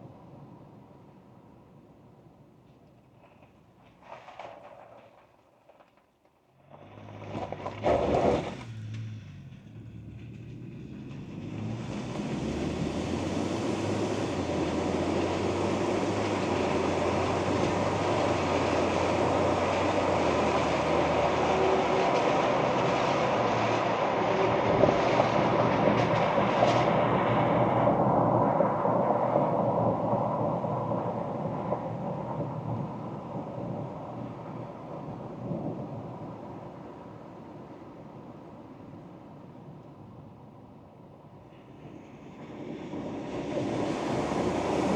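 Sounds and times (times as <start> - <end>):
tyre road noise hiss: 2.7 - 25.4, 41.4 - 44.9
pickup truck engine rumble: 6.6 - 39.0.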